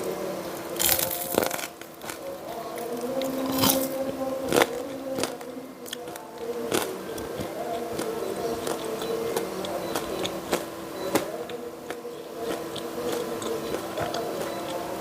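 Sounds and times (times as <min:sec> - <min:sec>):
crunchy chewing: 0:00.0 - 0:15.0
steady background hum: 0:00.0 - 0:15.0.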